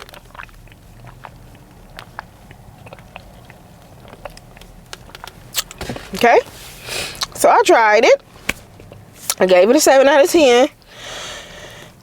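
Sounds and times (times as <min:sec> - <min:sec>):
mouth chewing clicks: 0:00.0 - 0:05.8.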